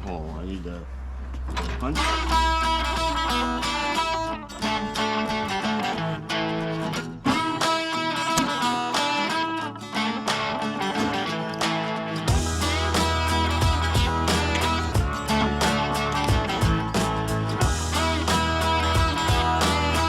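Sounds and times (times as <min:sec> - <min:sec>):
guitar music on radio: 0:01.8 - 0:20.0.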